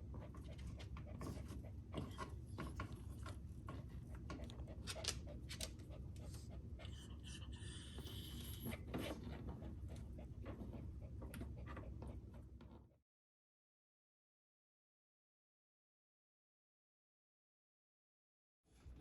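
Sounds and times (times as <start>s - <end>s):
dog claws ticking on floor: 4.2s - 6.3s.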